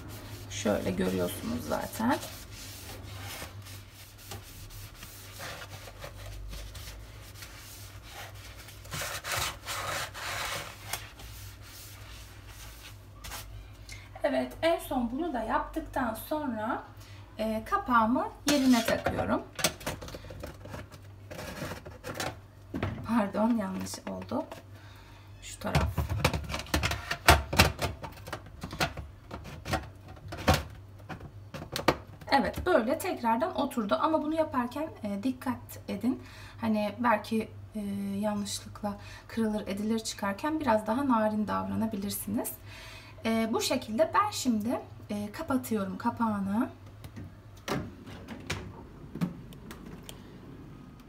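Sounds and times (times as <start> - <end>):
wet sponge scrubbing steel: 0.0 - 13.5.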